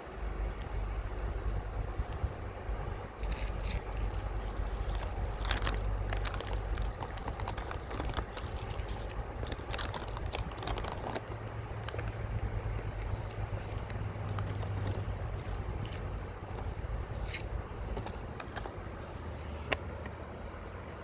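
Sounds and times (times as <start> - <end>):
steady low rumble: 0.0 - 21.0
river water splashing over stones: 3.1 - 18.9.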